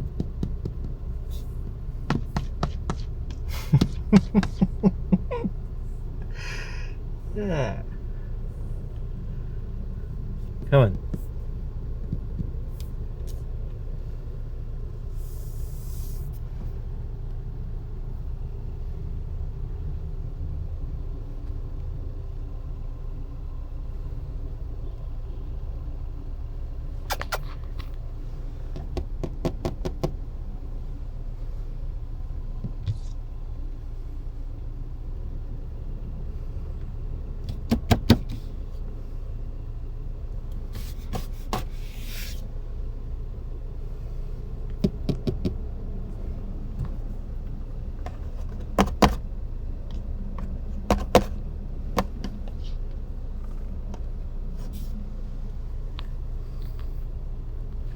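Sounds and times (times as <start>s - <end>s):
sharp clicks and taps: 0.0s - 4.7s
car cabin rumble: 0.0s - 57.9s.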